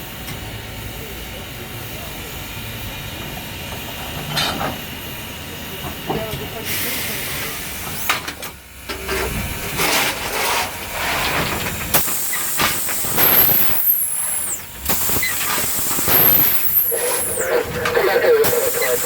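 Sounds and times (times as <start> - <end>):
steam locomotive hissing steam: 0.0 - 19.0.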